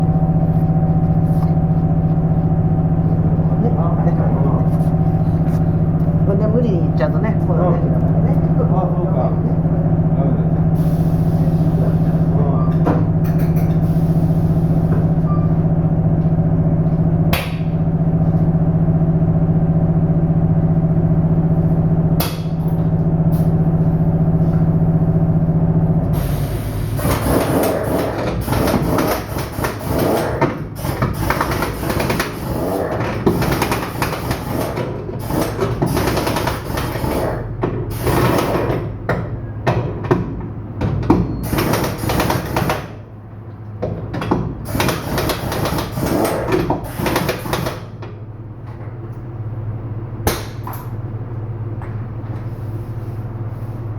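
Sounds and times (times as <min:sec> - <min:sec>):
steady engine hum: 0:00.0 - 0:53.9.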